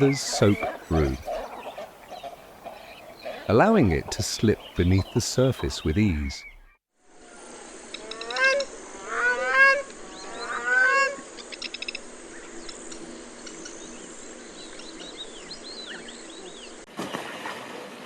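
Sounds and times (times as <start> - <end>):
small birds chirping: 0.0 - 6.8, 11.3 - 16.8
wetland ambience hiss: 0.0 - 18.0
water bird honking: 8.2 - 11.2.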